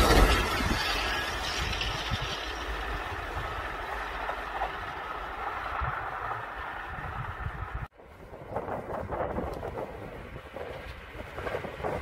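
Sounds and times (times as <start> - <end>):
train running on rails: 0.0 - 12.0.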